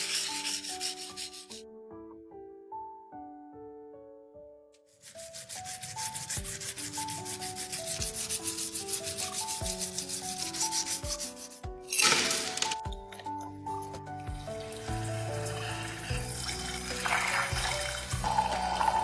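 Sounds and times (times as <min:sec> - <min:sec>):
sanding strokes: 0:00.0 - 0:01.6, 0:05.0 - 0:11.6
piano-like music: 0:00.0 - 0:19.0.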